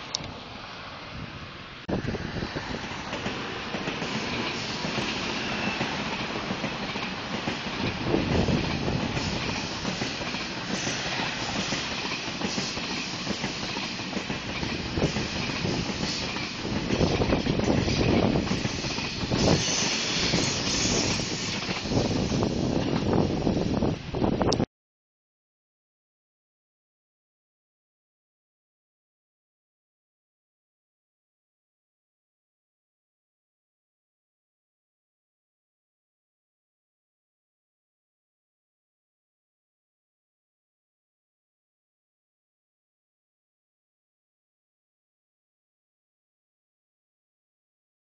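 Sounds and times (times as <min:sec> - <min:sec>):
high-speed train approaching: 0:00.0 - 0:24.6
steel wheels on rail: 0:00.0 - 0:24.6.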